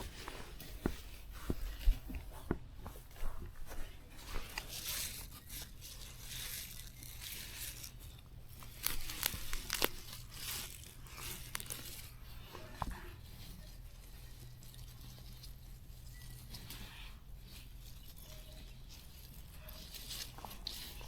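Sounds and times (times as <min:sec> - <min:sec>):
rustling and tearing: 0:00.0 - 0:21.0.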